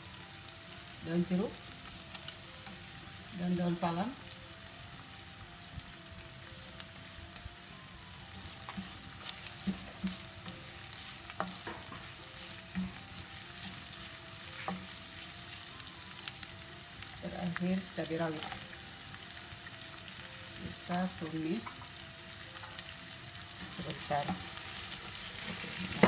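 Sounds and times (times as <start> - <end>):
aromatics sizzling in oil: 0.0 - 26.0
spatula scraping and tapping pan: 8.6 - 10.6, 11.3 - 12.1, 14.5 - 15.0.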